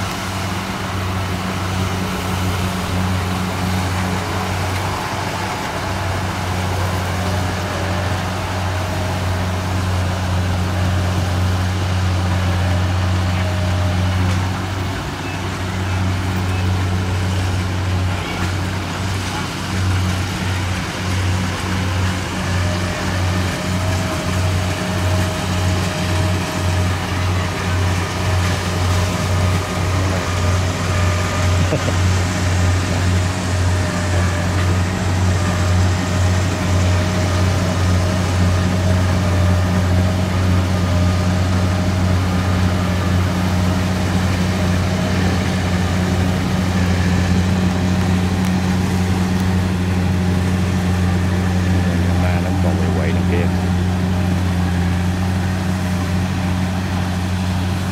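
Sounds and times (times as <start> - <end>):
diesel engine droning: 0.0 - 57.9
thin machinery whine: 0.0 - 57.9.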